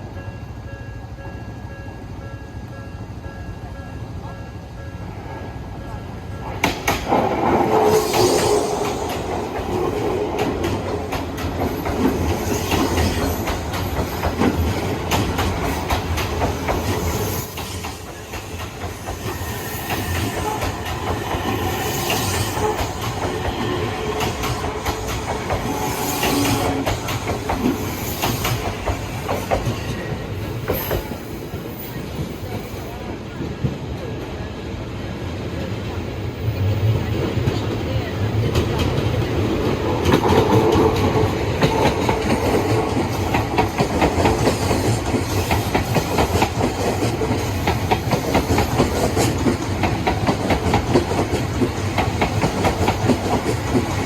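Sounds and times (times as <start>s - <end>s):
electric train passing: 0.0s - 54.0s
wheels clacking over rail joints: 6.4s - 8.0s, 8.7s - 31.3s, 38.3s - 54.0s.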